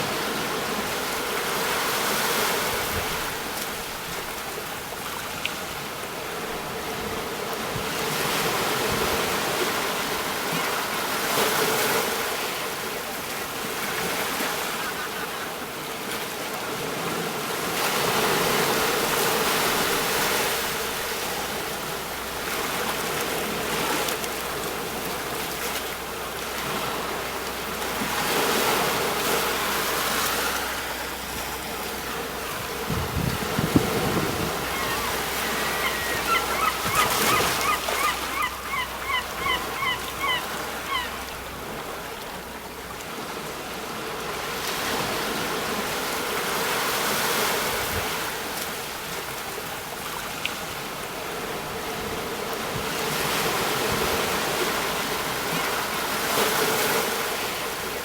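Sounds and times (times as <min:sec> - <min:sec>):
sea waves breaking on shore: 0:00.0 - 0:58.0
bird calling short repeated notes: 0:34.7 - 0:41.1.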